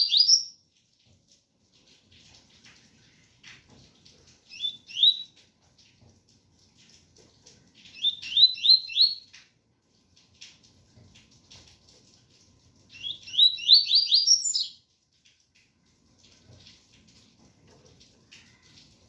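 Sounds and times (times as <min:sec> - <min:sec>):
bird singing whistled notes: 0:00.0 - 0:00.5, 0:04.5 - 0:05.3, 0:07.9 - 0:09.3, 0:13.0 - 0:14.8
faint rain patter: 0:00.0 - 0:19.0.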